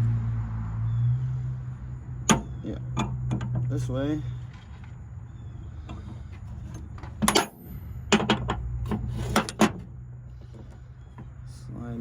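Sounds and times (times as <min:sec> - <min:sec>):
metal parts clinking: 0:05.9 - 0:09.8.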